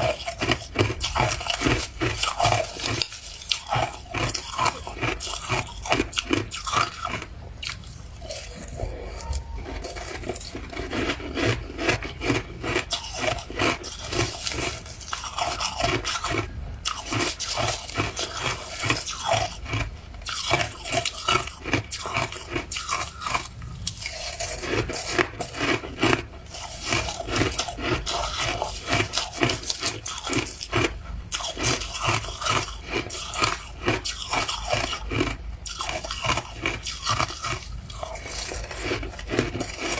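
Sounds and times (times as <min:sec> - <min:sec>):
ice crunching: 0:00.0 - 0:39.9.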